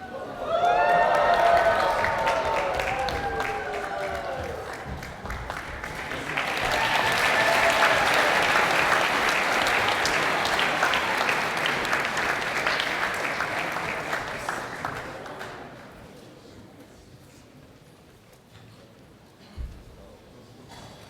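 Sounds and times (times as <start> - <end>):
audience applauding: 0.1 - 16.0.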